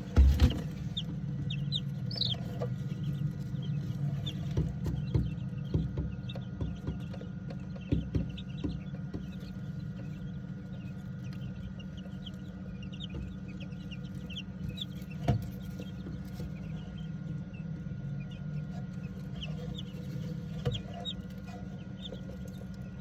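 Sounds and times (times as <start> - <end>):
knocks: 0.0 - 11.8
chicks peeping: 0.0 - 23.0
steady low hum: 0.0 - 23.0.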